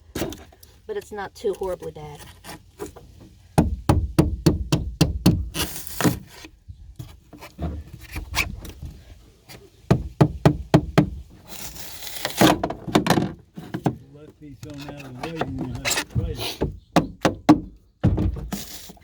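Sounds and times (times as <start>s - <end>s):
hand tool knocking at foam: 3.6s - 5.6s, 9.9s - 11.2s, 15.7s - 18.4s
foam scraping rasps: 5.2s - 12.9s, 13.5s - 17.6s, 18.2s - 19.0s.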